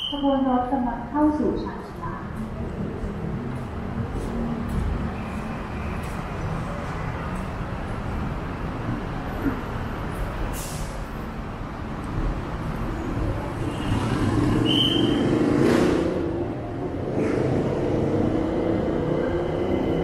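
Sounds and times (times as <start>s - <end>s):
high squeal: 0.0s - 0.4s, 14.6s - 15.3s
train approaching rumble: 0.0s - 20.0s.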